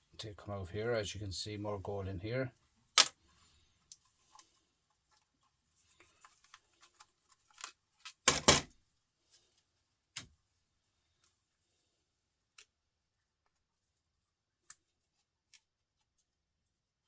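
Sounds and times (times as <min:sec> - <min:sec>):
laptop parts and tools clattering: 0:06.0 - 0:08.8.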